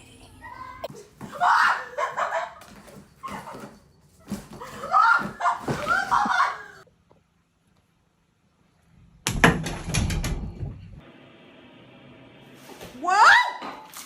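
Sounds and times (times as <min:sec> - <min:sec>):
people exclaiming and laughing: 0:00.4 - 0:02.6, 0:04.8 - 0:06.8.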